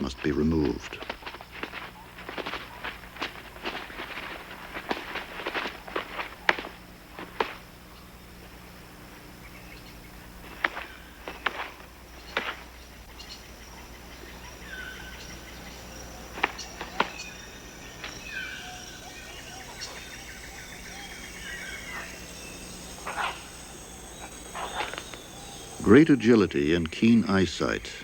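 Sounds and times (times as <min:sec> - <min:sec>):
insects buzzing: 0:00.0 - 0:28.0
bird chirps and trill: 0:09.4 - 0:28.0.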